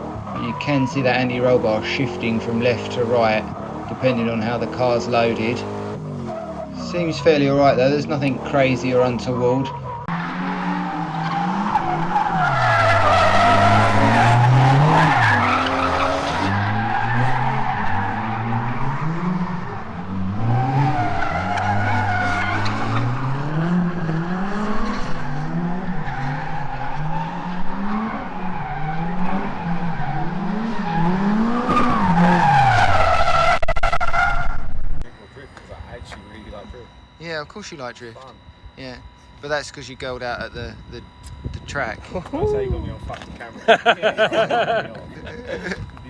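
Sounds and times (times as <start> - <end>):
tyres squealing: 0.0 - 23.2, 27.9 - 34.4
car engine revving: 0.0 - 46.0.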